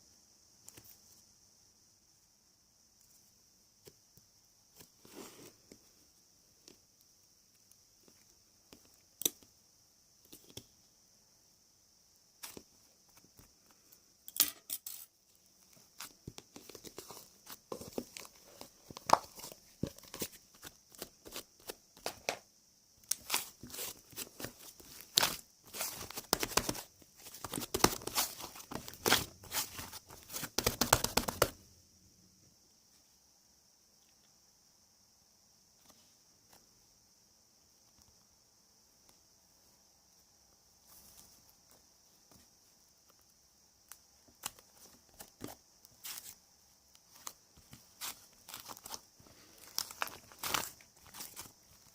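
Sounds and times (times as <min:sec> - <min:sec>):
crinkling and tearing: 0:47.1 - 0:51.9.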